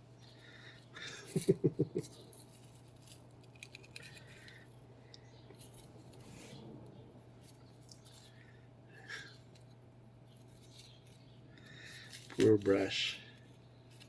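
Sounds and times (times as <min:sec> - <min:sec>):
faint scraping: 0:03.9 - 0:08.6.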